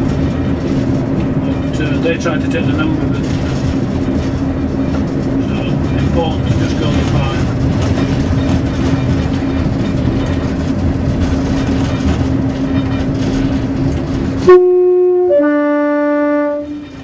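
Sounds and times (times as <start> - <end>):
railbus rumbling along the line: 0.0 - 17.0
two-tone train horn: 14.4 - 17.0.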